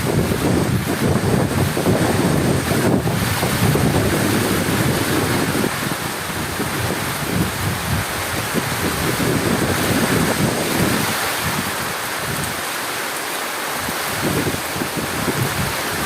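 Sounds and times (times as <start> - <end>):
rolling thunder rumble: 0.0 - 12.5
heavy rain pouring: 0.0 - 16.0.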